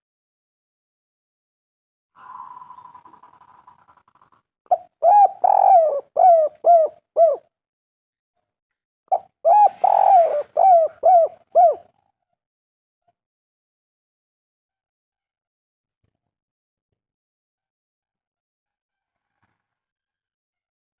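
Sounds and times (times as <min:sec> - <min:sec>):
dove cooing: 0:04.7 - 0:07.5, 0:09.1 - 0:11.9.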